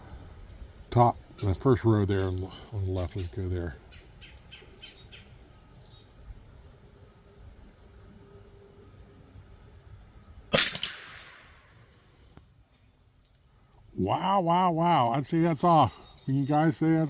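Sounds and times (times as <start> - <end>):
insects chirring: 0.0 - 17.0
rifle shot with echo: 10.5 - 11.9.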